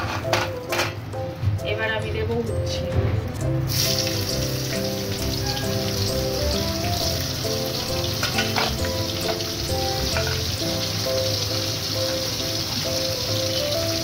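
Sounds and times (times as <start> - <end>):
background music: 0.0 - 14.0
vegetables sizzling in hot oil: 3.6 - 14.0.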